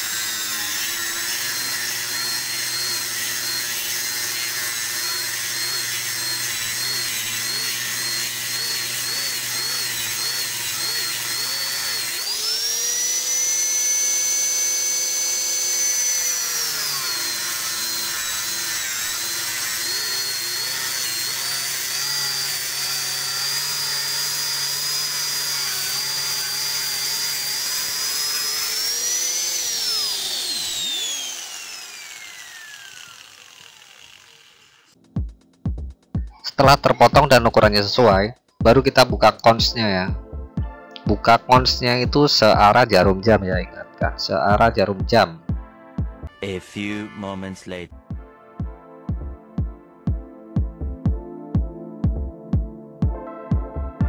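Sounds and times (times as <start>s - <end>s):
angle grinder cutting steel: 0.0s - 35.0s.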